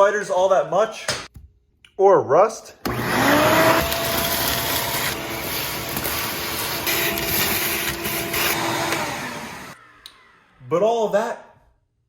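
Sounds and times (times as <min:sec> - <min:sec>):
electric motor tool hissing: 0:02.9 - 0:10.4.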